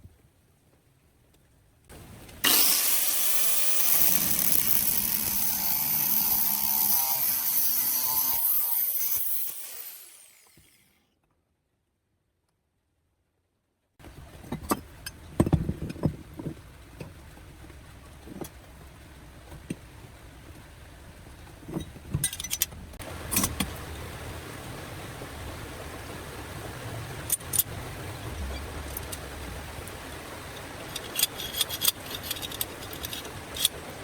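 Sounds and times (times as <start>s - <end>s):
low steady hum: 14.0s - 34.0s
metallic clinks and knocks: 21.7s - 22.8s, 30.9s - 33.8s.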